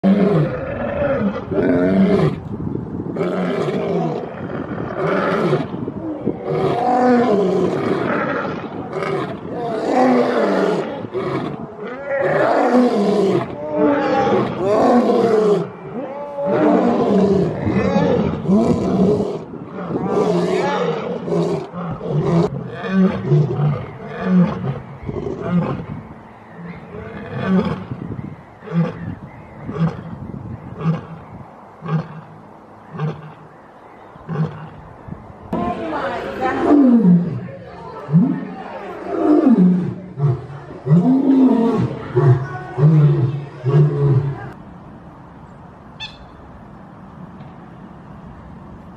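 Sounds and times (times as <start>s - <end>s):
lion roaring and growling: 0.0s - 2.4s, 3.1s - 25.9s, 26.6s - 28.0s, 36.5s - 44.6s.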